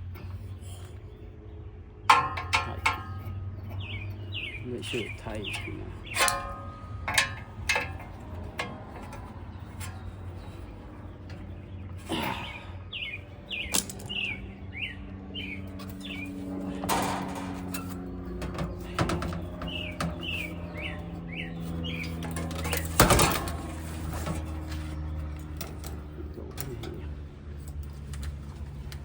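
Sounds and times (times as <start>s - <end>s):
low steady hum: 0.0s - 29.0s
sharp clicks and knocks: 2.1s - 4.0s, 4.9s - 11.7s, 15.8s - 29.0s
bird chirping: 2.7s - 16.8s, 17.6s - 26.5s.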